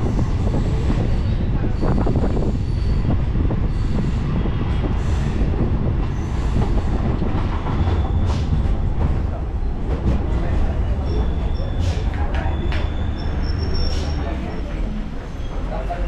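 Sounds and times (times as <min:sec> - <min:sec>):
train wheels rumbling on track: 0:00.0 - 0:16.0
faint high wheel squeal: 0:11.0 - 0:15.9.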